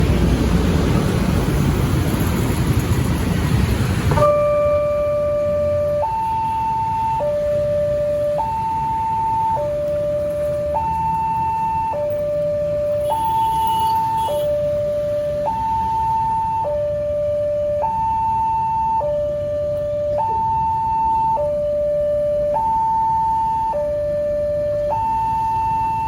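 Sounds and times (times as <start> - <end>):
loud rushing noise: 0.0 - 4.2
two-tone warning siren: 4.1 - 26.0.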